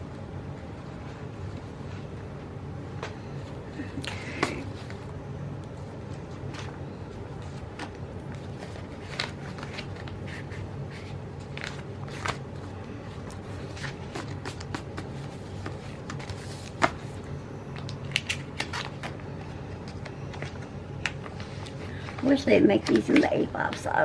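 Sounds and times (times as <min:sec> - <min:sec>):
steady low hum: 0:00.0 - 0:24.0
paper rustling: 0:06.1 - 0:24.0.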